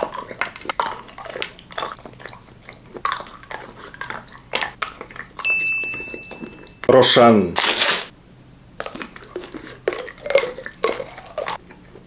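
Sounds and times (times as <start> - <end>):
wet mouth chewing noises: 0.0 - 5.5, 8.8 - 12.0
chocolate crunching: 7.6 - 8.1.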